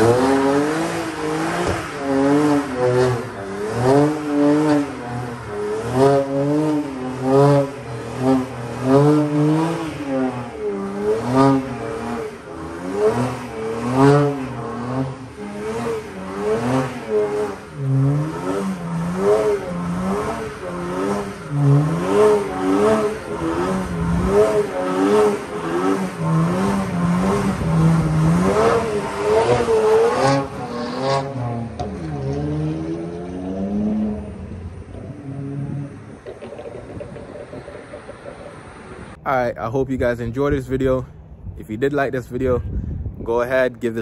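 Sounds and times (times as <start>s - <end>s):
car engine revving hard: 0.0s - 39.2s
tyres spinning on pavement: 35.8s - 39.2s.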